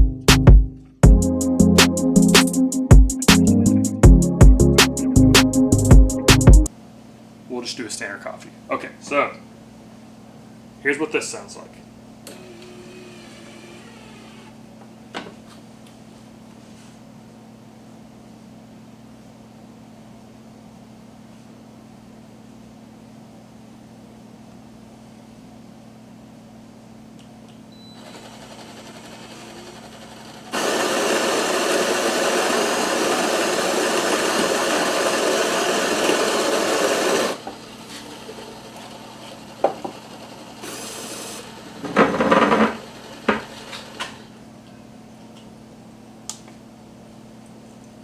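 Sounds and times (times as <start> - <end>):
harsh whirring: 12.2 - 14.6, 28.0 - 44.4
coffee maker low hum: 12.3 - 14.6, 27.7 - 44.4.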